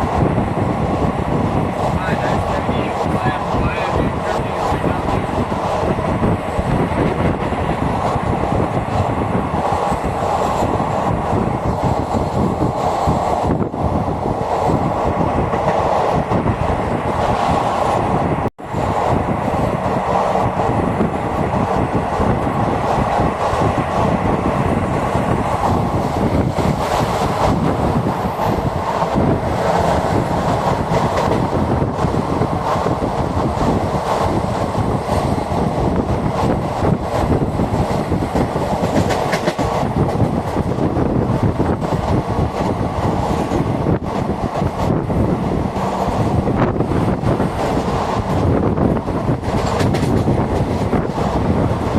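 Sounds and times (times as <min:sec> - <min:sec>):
train wheels rumbling on rails: 0:00.0 - 0:51.9.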